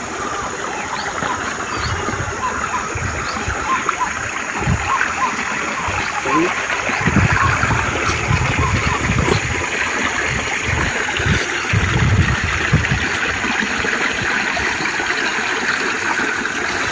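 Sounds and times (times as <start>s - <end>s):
river rushing and gurgling: 0.0s - 16.9s
low rumbles: 0.9s - 13.1s.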